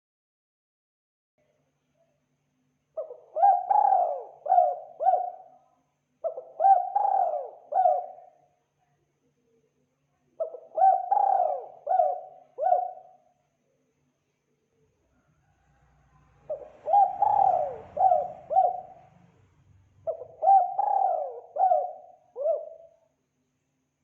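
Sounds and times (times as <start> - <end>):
dove cooing: 3.0 - 5.6, 6.2 - 8.4, 10.4 - 13.2, 16.4 - 19.2, 20.0 - 23.0.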